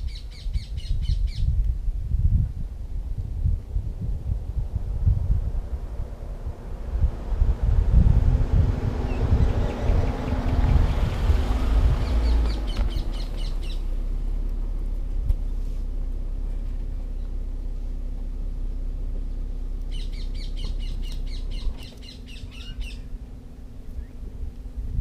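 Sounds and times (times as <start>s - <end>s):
bird chirping: 0.0s - 1.5s, 9.0s - 13.9s, 19.8s - 23.2s
low rumble with hum: 0.0s - 25.0s.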